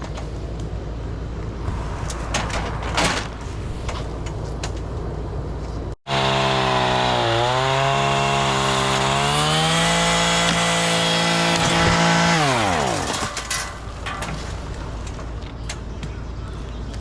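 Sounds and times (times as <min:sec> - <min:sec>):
chainsaw running at high revs: 0:06.1 - 0:13.2.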